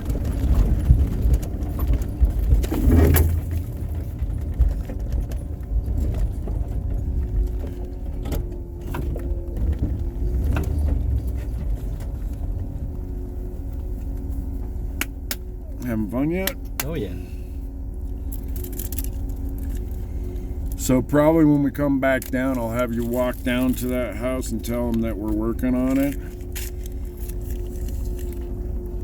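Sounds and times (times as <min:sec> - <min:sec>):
knocks and rattles: 0:00.0 - 0:13.2
snowplow engine rumbling: 0:00.0 - 0:29.0.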